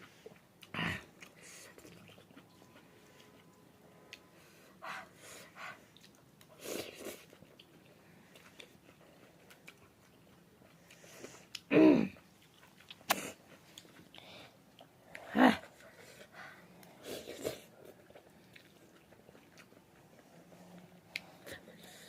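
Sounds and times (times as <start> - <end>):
chewing and eating: 0.0 - 22.0
mouth smacks: 12.9 - 13.9.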